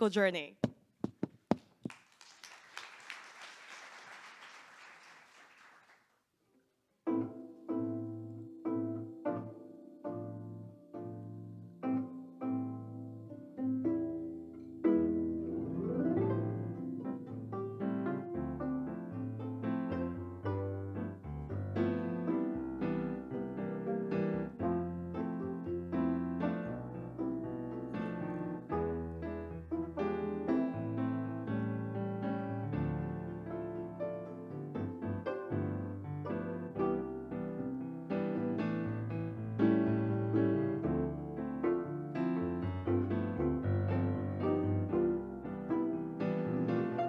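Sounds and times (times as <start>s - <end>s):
audience applause: 1.8s - 6.1s
plucked string notes: 7.0s - 47.0s
live piano music: 7.1s - 47.0s.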